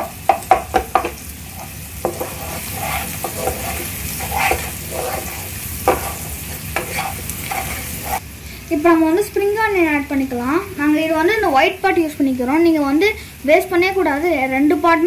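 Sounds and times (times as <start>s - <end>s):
spatula knocking and scraping pan: 0.0s - 8.2s
egg sizzling in hot oil: 0.0s - 8.4s.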